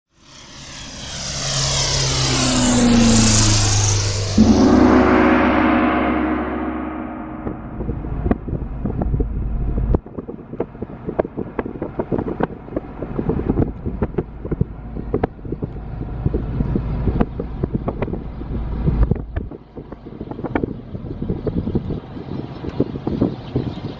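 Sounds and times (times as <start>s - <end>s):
wind rumbling on microphone: 0.3s - 23.9s
flock of birds chirping: 21.5s - 23.9s.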